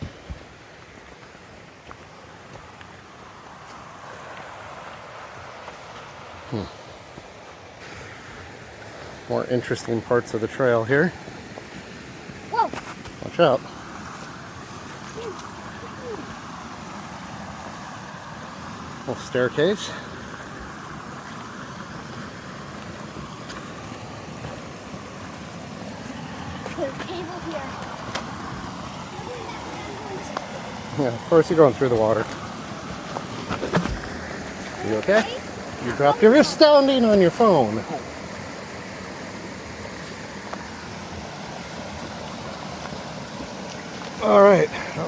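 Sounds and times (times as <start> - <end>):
creek water rushing: 0.0 - 45.0.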